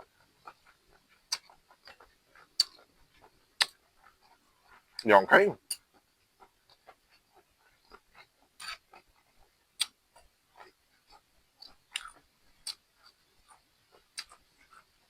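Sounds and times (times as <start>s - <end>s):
person chewing crunchy food: 0.0s - 15.0s
wet mouth clicks: 0.2s - 5.1s, 5.7s - 15.0s.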